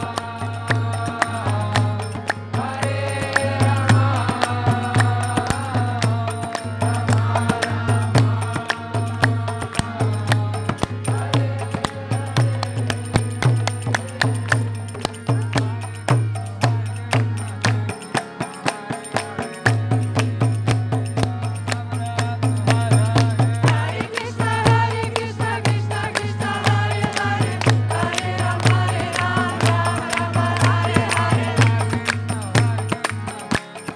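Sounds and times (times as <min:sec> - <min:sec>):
voices chanting: 0:00.0 - 0:14.8, 0:22.7 - 0:32.8
hand cymbals beating: 0:00.0 - 0:33.9.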